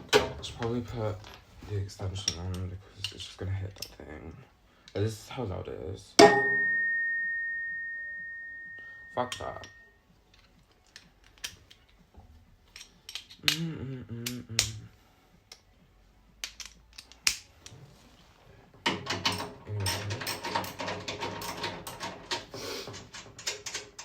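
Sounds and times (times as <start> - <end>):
tools and metal parts clicking: 2.2 - 4.2, 9.2 - 12.0, 12.6 - 13.6, 16.4 - 17.8, 18.8 - 24.0
rattling clatter of rapid clicks: 18.9 - 24.0.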